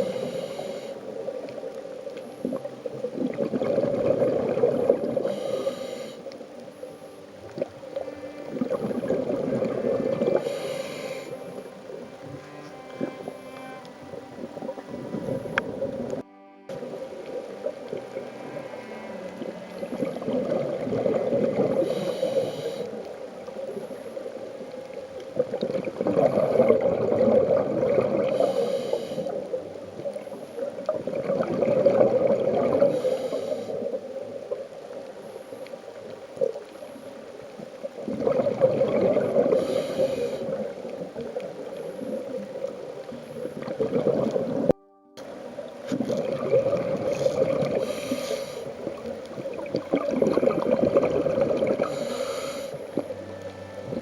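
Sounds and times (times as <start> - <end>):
breathing hisses: 0.0 - 1.1, 5.2 - 6.3, 10.3 - 11.6, 21.7 - 23.0, 28.3 - 29.5, 32.9 - 34.0, 39.4 - 40.7, 47.8 - 48.8, 51.8 - 53.1
bubbles gurgling underwater: 2.4 - 5.5, 7.4 - 13.2, 19.3 - 34.8, 37.4 - 44.8, 45.7 - 54.0.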